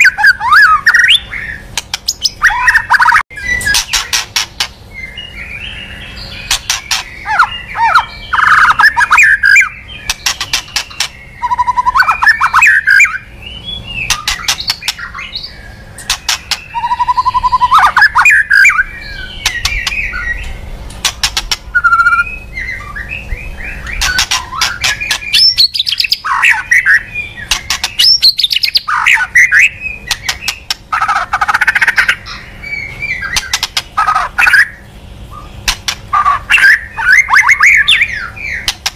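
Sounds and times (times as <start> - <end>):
bird singing whistled phrases: 0.0 - 4.1, 4.9 - 20.5, 21.7 - 30.8, 36.2 - 38.7
sharp ticking bird notes: 0.0 - 38.9.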